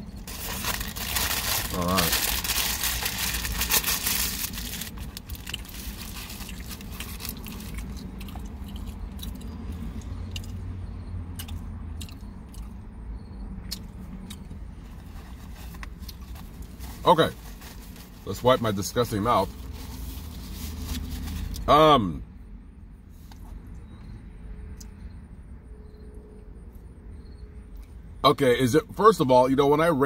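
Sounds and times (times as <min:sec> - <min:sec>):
man chewing food: 0:05.4 - 0:10.6, 0:11.3 - 0:12.8, 0:13.6 - 0:16.6.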